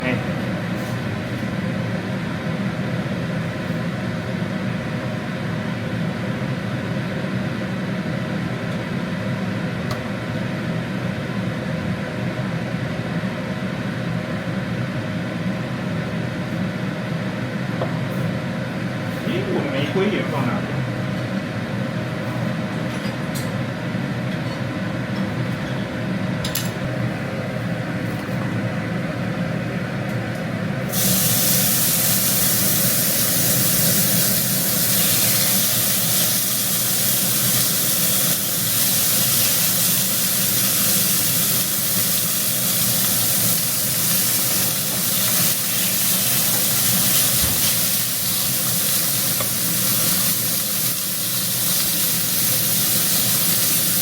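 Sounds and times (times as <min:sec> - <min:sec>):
meat sizzling: 0:30.9 - 0:54.0.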